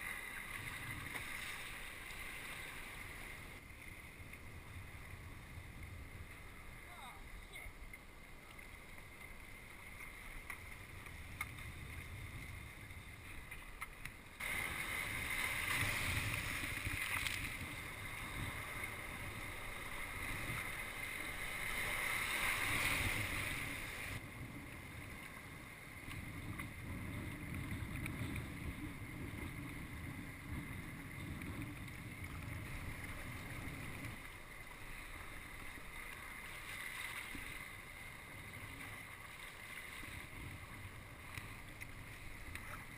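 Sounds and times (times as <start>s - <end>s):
water washing around hull: 0.0s - 42.9s
hiss of rushing water: 14.4s - 17.2s
wind buffeting microphone: 25.8s - 34.3s.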